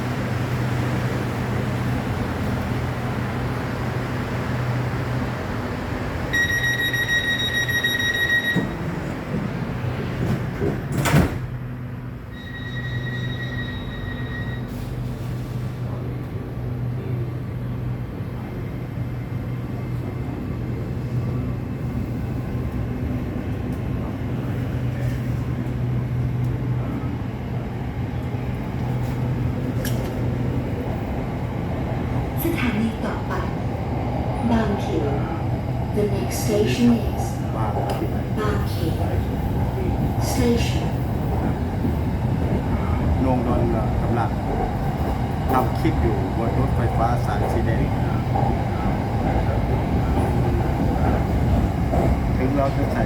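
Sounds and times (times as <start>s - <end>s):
electric train humming: 0.0s - 53.0s
door warning tone: 6.3s - 9.0s, 12.3s - 14.8s
sliding doors shutting: 8.5s - 11.6s.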